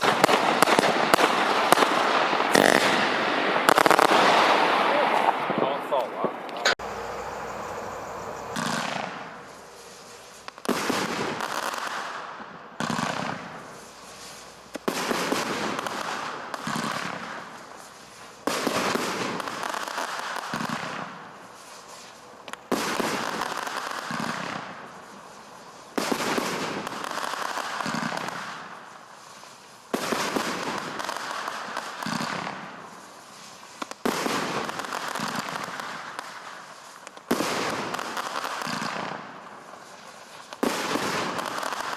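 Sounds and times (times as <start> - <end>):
fireworks banging: 0.0 - 25.3, 33.8 - 41.9.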